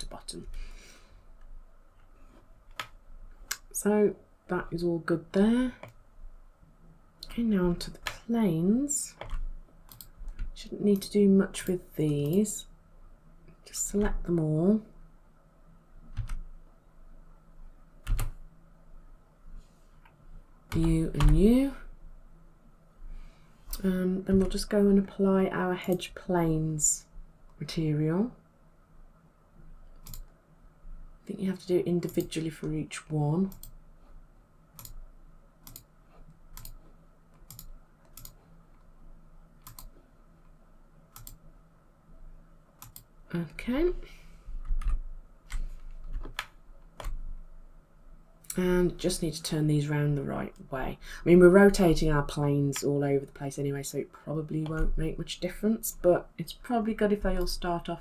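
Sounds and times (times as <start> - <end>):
faint low hum: 0.0 - 58.0
keyboard and mouse clicks: 2.6 - 3.7, 5.8 - 6.0, 9.1 - 12.5, 16.1 - 16.5, 18.0 - 18.4, 20.0 - 21.5, 23.7 - 24.7, 29.9 - 30.4, 32.0 - 32.8, 33.4 - 33.8, 34.8 - 35.0, 35.6 - 38.9, 39.6 - 40.0, 41.1 - 41.4, 42.8 - 43.1, 44.6 - 47.4.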